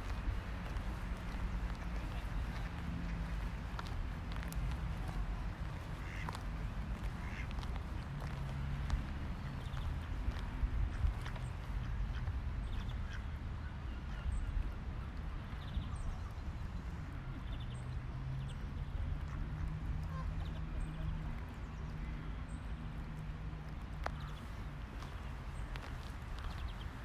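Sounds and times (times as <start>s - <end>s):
steady low rumble: 0.0s - 13.2s
birds calling: 0.1s - 8.4s.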